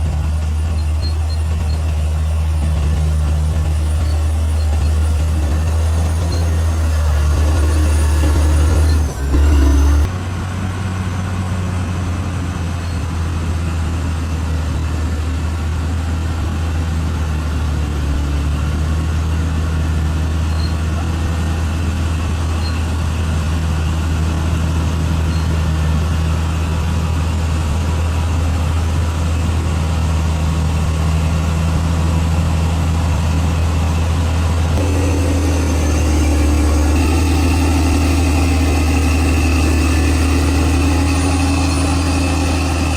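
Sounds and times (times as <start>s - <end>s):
bulldozer diesel engine humming: 0.0s - 42.9s.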